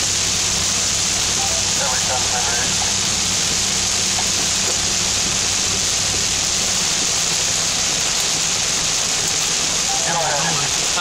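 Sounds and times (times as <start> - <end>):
rain on car windshield: 0.0 - 11.0.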